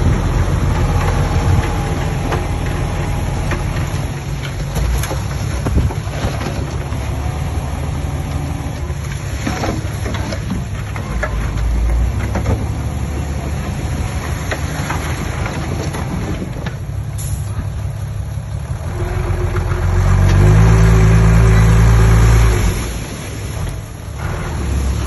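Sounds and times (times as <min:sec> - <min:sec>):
heavy diesel engine revving: 0:00.0 - 0:10.2, 0:17.2 - 0:25.0.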